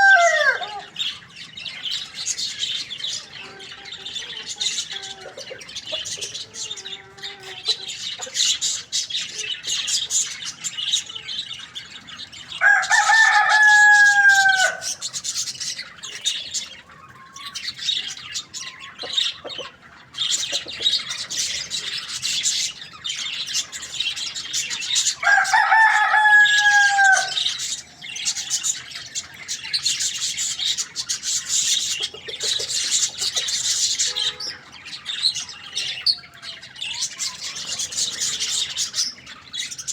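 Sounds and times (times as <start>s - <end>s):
rooster crowing: 0.0s - 1.0s, 12.6s - 15.0s, 25.2s - 27.6s
small birds chirping: 0.0s - 39.9s.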